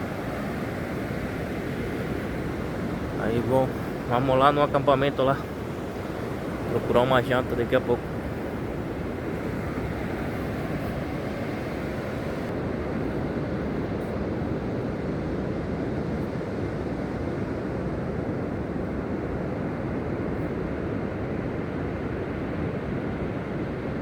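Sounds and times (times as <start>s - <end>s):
ocean surf: 0.0s - 24.0s
wind: 0.0s - 24.0s.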